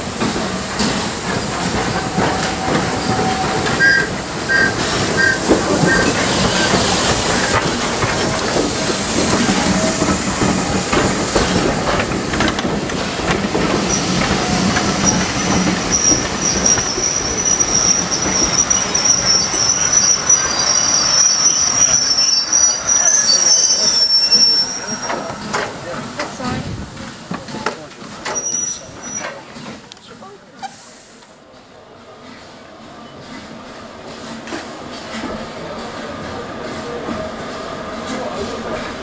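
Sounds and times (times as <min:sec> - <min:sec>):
train wheels clicking over track: 0:00.0 - 0:22.2, 0:22.8 - 0:39.0
high-pitched wheel squeal: 0:02.4 - 0:06.7, 0:15.9 - 0:25.3.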